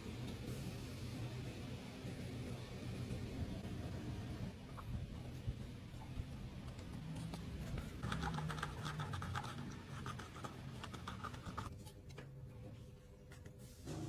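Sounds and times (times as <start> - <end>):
scratching and scraping: 6.6 - 12.0.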